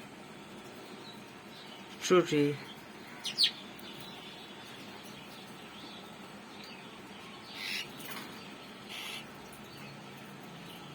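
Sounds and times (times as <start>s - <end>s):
faint background noise: 0.0s - 10.9s
parrot chirping: 3.1s - 3.6s.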